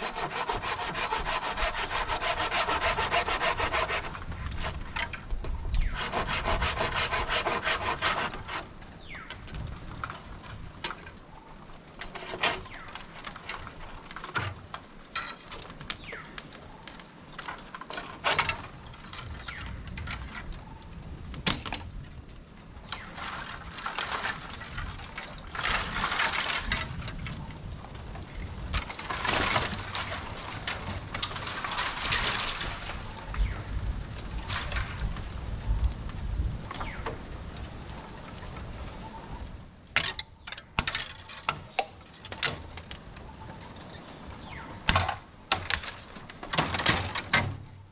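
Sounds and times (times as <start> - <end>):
hand saw cutting wood: 0.0 - 4.9, 5.8 - 8.7
rough scraping: 0.0 - 5.1, 5.8 - 8.7.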